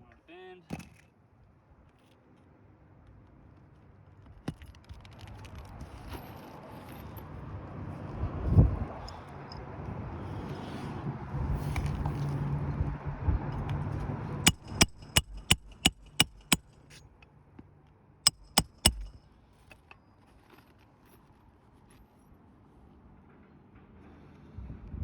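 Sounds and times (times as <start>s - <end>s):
hammer striking metal: 14.5s - 16.7s, 18.3s - 19.2s.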